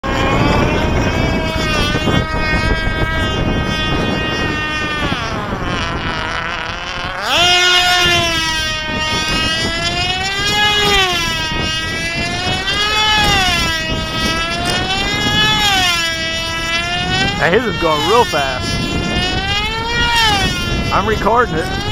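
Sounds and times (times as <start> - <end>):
model airplane engine whine: 0.0 - 21.9
wind buffeting microphone: 0.0 - 21.9.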